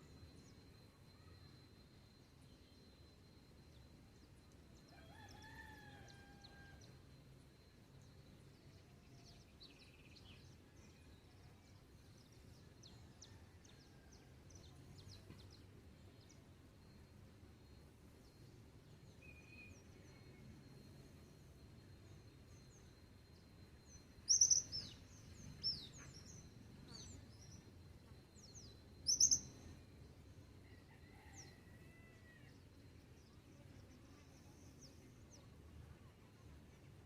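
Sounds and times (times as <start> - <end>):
distant rooster crowing: 4.9 - 7.0, 30.6 - 32.6
small birds chirping: 24.3 - 26.4, 29.1 - 29.6.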